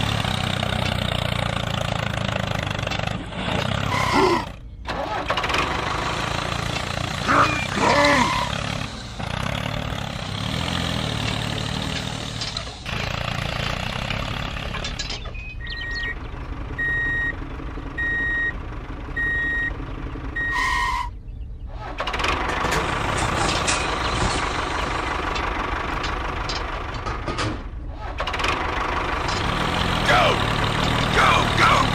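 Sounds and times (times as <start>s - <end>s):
heavy vehicle engine running: 0.0s - 31.9s
reversing alarm beeping: 16.8s - 17.4s, 18.0s - 18.6s, 19.2s - 19.7s, 20.4s - 21.1s.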